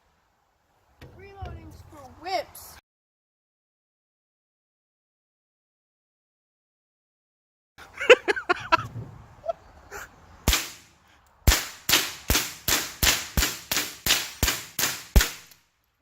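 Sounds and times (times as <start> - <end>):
rifle shots: 11.5 - 15.6.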